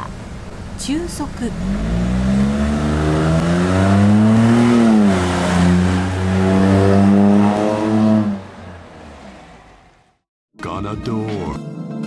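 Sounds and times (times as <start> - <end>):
car exhaust accelerating: 1.2 - 10.2.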